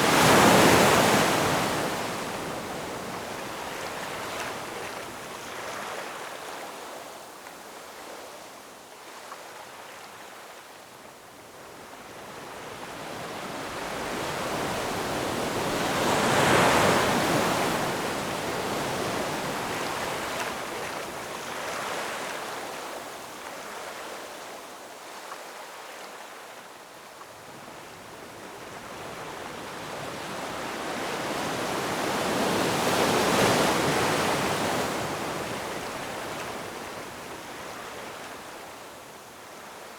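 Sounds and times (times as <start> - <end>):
ocean waves crashing: 0.0 - 2.6.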